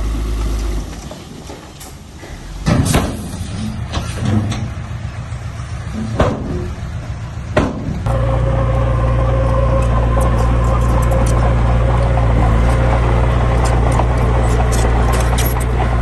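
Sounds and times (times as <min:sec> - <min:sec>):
loud metallic clunks: 0:00.0 - 0:04.9, 0:05.9 - 0:06.9, 0:07.5 - 0:08.4
heavy vehicle engine running: 0:00.0 - 0:16.0.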